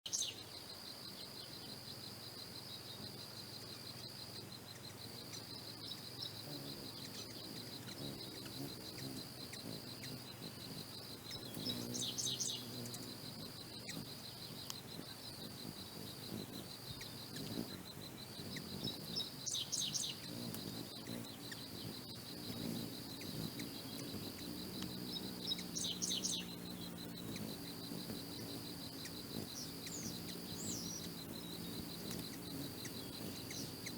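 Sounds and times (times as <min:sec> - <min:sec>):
hummingbird wings humming: 0:00.1 - 0:33.9
pulsing insect trill: 0:00.1 - 0:33.9
high bird chirps: 0:17.0 - 0:33.9.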